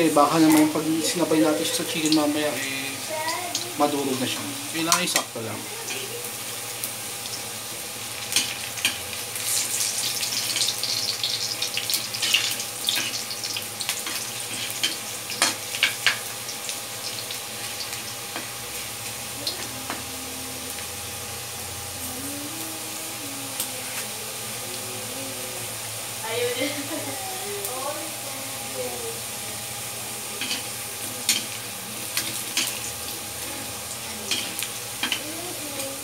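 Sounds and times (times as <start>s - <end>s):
potato wedges sizzling in hot oil: 0.0s - 36.0s.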